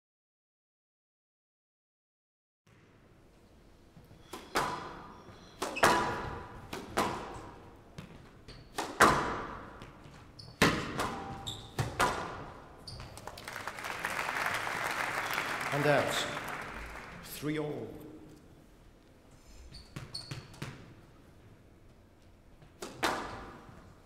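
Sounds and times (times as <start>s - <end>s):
squash ball hits echoing: 4.3s - 10.0s, 10.6s - 12.6s, 22.8s - 23.8s.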